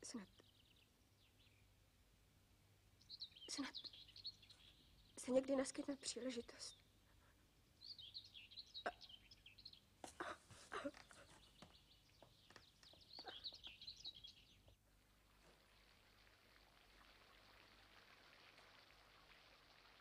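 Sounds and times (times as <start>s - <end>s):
small birds twittering: 0.0s - 1.7s, 3.0s - 14.8s.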